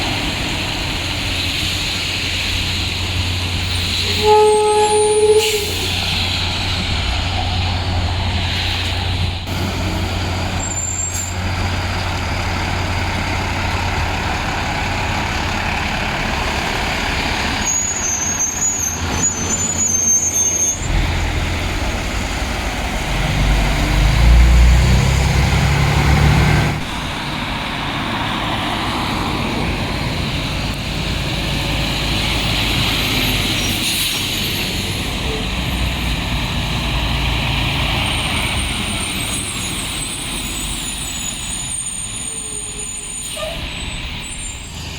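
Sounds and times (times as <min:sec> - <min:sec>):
diesel truck engines rumbling: 0:00.0 - 0:44.9
high squeal: 0:03.6 - 0:07.9, 0:10.4 - 0:12.1, 0:16.5 - 0:22.0, 0:32.3 - 0:36.2, 0:37.5 - 0:44.9.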